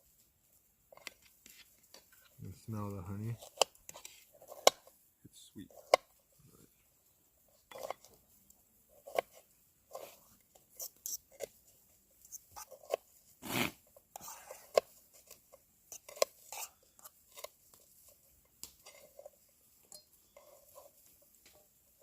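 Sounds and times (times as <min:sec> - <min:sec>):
utensils scraping a dish: 0:07.7 - 0:08.1, 0:12.5 - 0:17.6.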